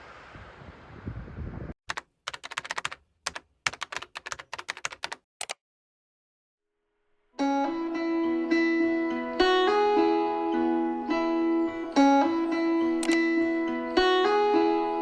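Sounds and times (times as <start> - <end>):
wind noise on microphone: 0.0 - 1.8
computer keyboard typing: 1.9 - 5.6.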